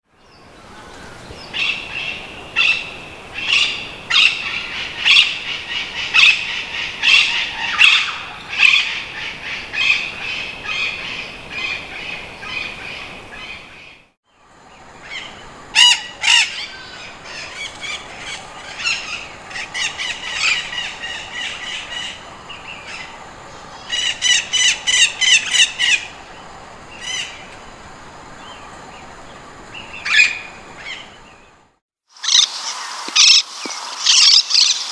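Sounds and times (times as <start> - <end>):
parakeet calls: 0.8 - 14.0, 32.2 - 34.9.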